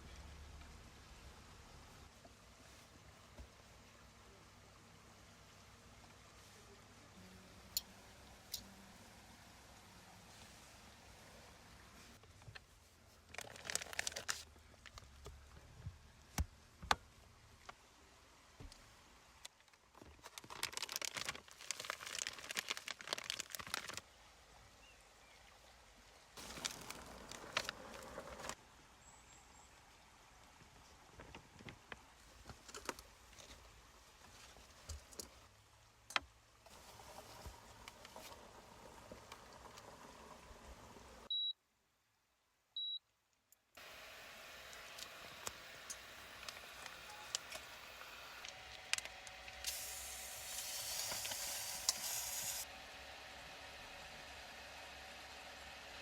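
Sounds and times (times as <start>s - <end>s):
crinkling and rustling: 12.0s - 17.8s, 18.6s - 24.0s, 26.4s - 28.6s, 30.6s - 35.5s.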